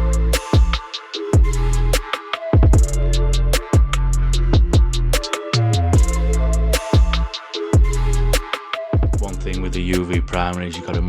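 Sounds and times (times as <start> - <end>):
deep bass notes: 0.0 - 0.8, 1.4 - 2.0, 2.6 - 8.4, 9.0 - 11.0
kick drum: 0.5 - 0.8, 1.4 - 1.6, 2.6 - 3.0, 3.7 - 5.0, 6.0 - 6.2, 6.9 - 7.2, 7.8 - 8.0, 9.0 - 9.4.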